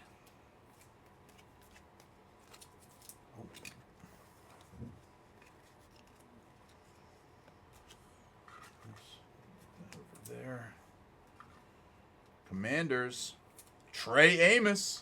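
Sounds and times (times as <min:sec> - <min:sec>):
trading cards and wrappers rustling: 0:00.7 - 0:03.8.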